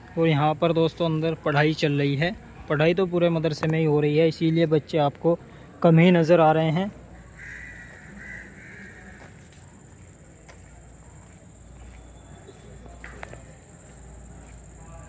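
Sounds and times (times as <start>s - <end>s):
bird cawing: 7.2s - 9.3s.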